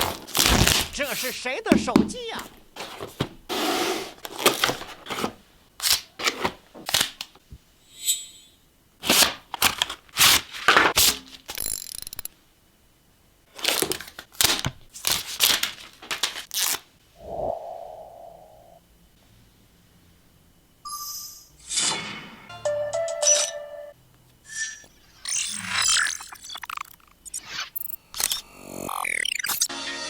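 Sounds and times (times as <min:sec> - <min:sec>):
plastic and paper crinkling: 0:00.0 - 0:03.4, 0:04.1 - 0:07.4, 0:13.5 - 0:16.8.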